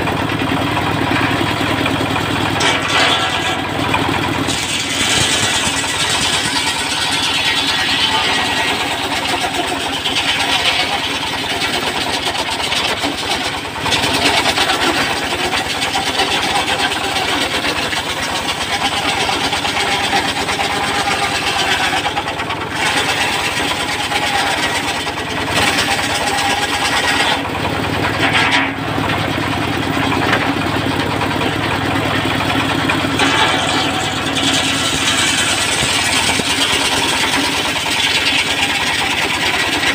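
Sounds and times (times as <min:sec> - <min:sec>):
sawing machine engine running: 0:00.0 - 0:39.9.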